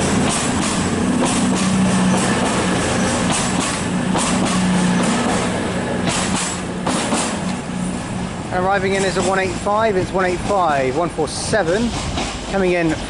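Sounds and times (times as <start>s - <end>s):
diesel train engine humming: 0.0s - 13.0s
sharp clicks and clacks: 3.2s - 5.4s, 6.0s - 7.5s.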